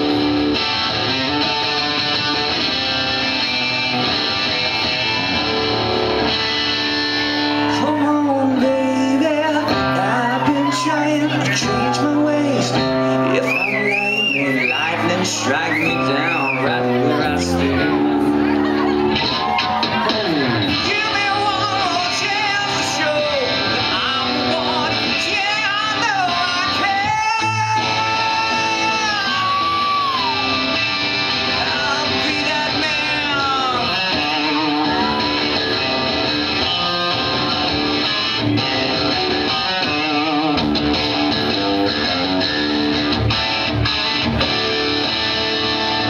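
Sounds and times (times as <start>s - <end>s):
acoustic guitar playing: 0.0s - 46.0s
man singing with vibrato: 7.5s - 18.7s, 20.7s - 36.0s.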